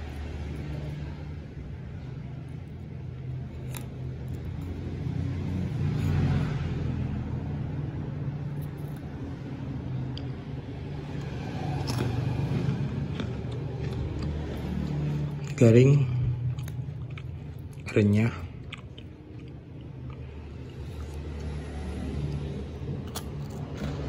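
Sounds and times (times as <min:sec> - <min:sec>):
crunchy biscuit being chewed: 0:02.4 - 0:06.5, 0:10.0 - 0:24.0.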